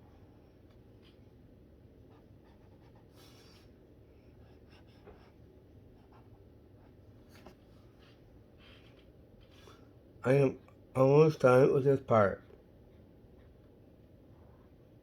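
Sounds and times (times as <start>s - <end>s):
low room hum: 0.0s - 15.0s
brush pen scratching on paper: 2.0s - 9.9s.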